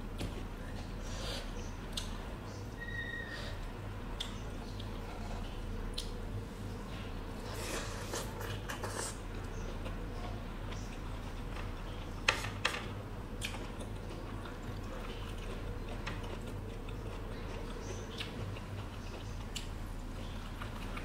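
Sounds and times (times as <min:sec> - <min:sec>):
low steady hum: 0:00.0 - 0:21.0
person chewing food: 0:04.1 - 0:06.2, 0:13.3 - 0:21.0.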